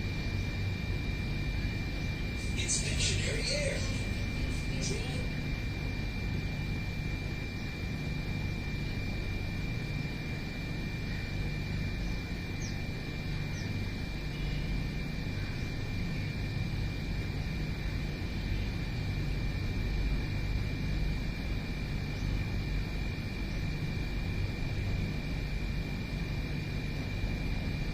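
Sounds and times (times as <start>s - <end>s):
low outdoor rumble: 0.0s - 27.9s.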